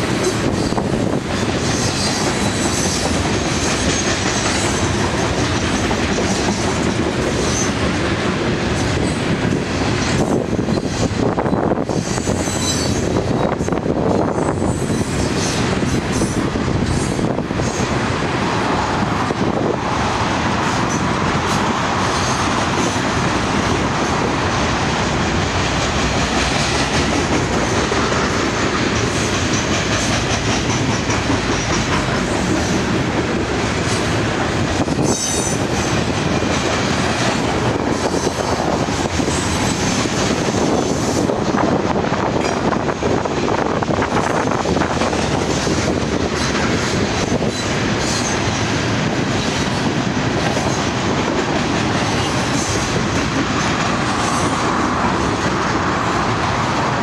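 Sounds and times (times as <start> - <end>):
freight train rumbling past: 0.0 - 57.0
faint high wheel squeals: 12.0 - 13.6.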